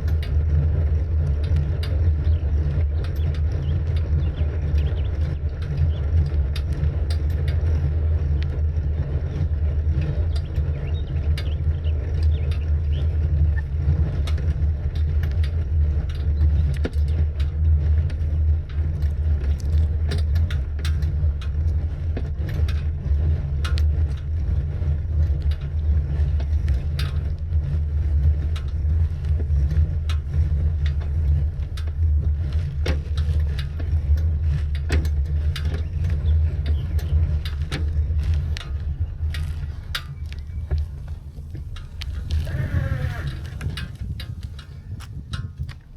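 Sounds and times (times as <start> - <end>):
bicycle road noise: 0.0 - 45.9
small clicks and rattles: 0.0 - 45.9
wind on microphone: 21.2 - 45.9.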